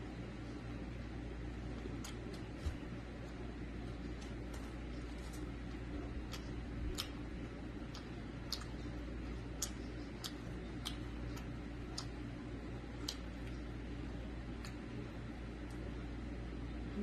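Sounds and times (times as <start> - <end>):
low steady hum: 0.0 - 17.0
mouth clicks of chewing: 1.9 - 2.5, 6.2 - 12.3, 12.9 - 13.6.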